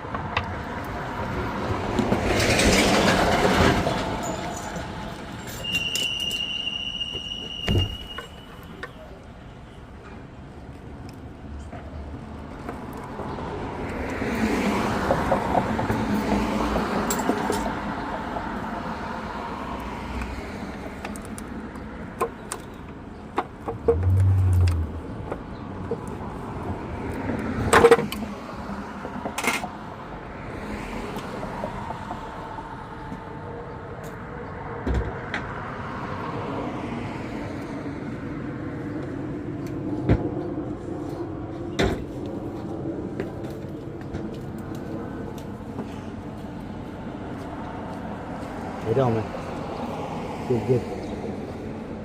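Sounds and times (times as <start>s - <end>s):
vehicle passing by: 23.9s - 25.4s.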